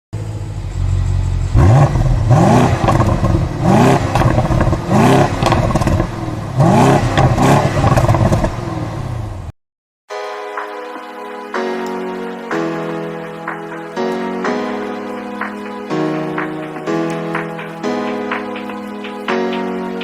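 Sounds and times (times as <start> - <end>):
car engine revving: 0.2 - 9.5
engine clatter: 0.2 - 9.5
music: 10.1 - 20.0.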